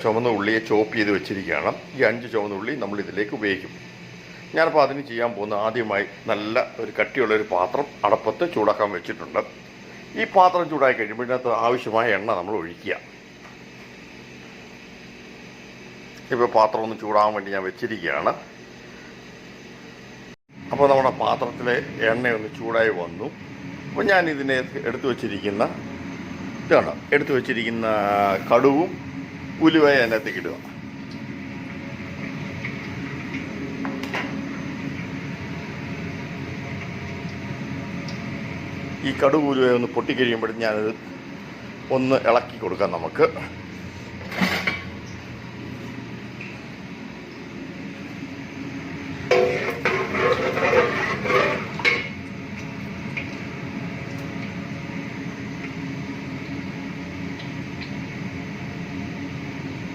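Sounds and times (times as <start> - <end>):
kitchen machinery hum and hiss: 0.0 - 59.9
metal spoon clanking on pot: 49.3 - 52.2.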